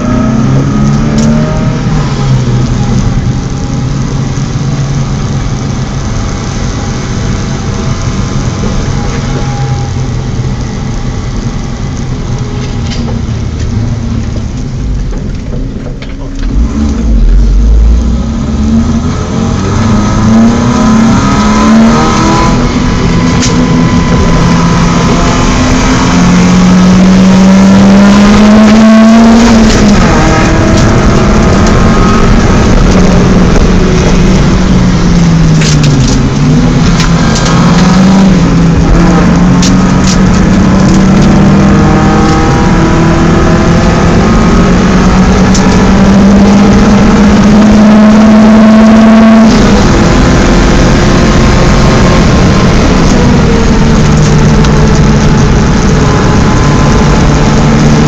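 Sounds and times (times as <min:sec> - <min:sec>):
car engine revving: 0:00.0 - 0:58.0
road and wind noise: 0:00.0 - 0:58.0.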